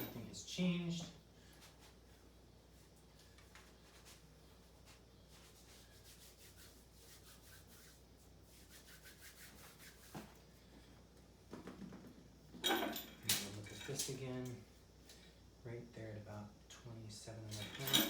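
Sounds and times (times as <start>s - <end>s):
rubbing and shuffling handling noises: 1.4s - 13.0s.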